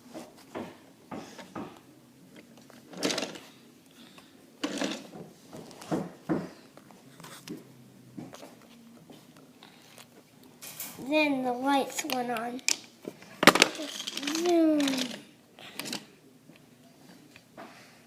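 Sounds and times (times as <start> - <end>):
wooden toy trains knocking and rattling: 13.4 - 15.2.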